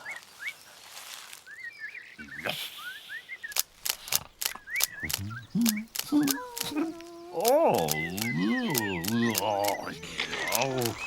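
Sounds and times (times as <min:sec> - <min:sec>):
sharp clicks: 0:03.5 - 0:11.0
low grunt: 0:05.0 - 0:11.0.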